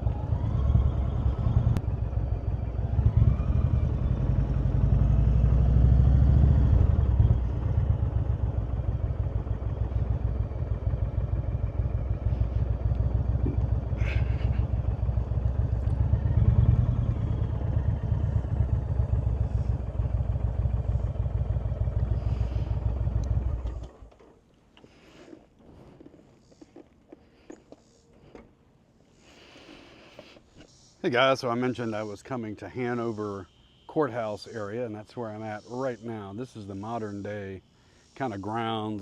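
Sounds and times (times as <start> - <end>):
motorcycle engine running: 0.0 - 24.4
faint clicks: 23.2 - 28.5.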